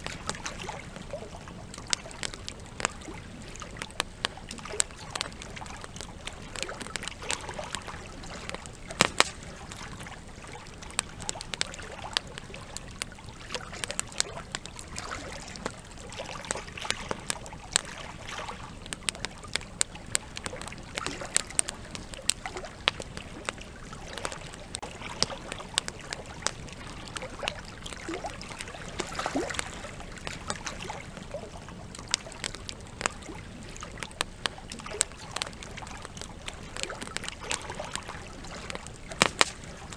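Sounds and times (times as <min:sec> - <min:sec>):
campfire crackling and popping: 0:00.0 - 0:39.9
flowing river water: 0:00.0 - 0:39.9.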